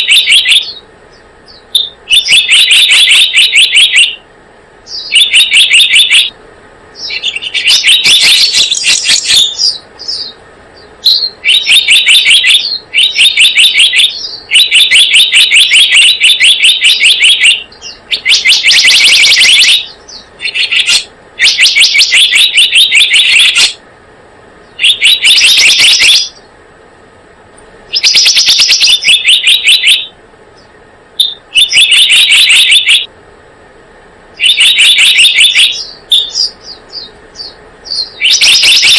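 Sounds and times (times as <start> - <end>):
bird chirping trills: 0.0 - 23.8, 24.6 - 26.6, 27.9 - 33.1, 34.4 - 38.9.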